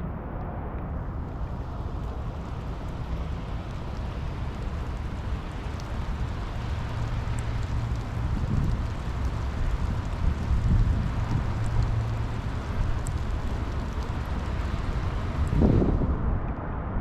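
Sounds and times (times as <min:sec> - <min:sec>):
heavy low rumble: 0:00.0 - 0:17.0
rain hiss: 0:01.0 - 0:16.0.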